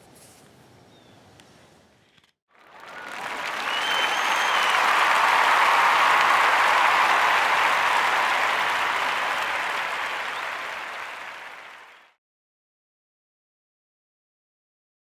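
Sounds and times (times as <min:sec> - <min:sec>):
crowd applause: 0:02.6 - 0:12.2.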